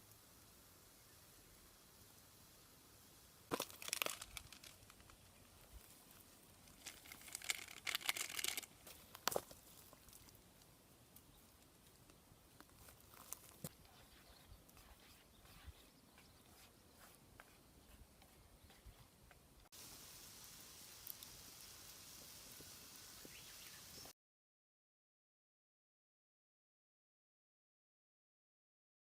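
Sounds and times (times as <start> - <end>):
crinkling and crackling: 3.5 - 15.8.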